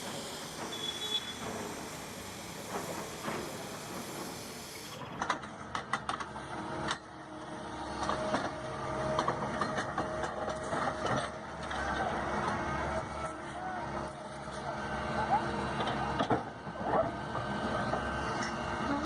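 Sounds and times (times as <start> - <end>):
faint machine whine: 0.0 - 5.0.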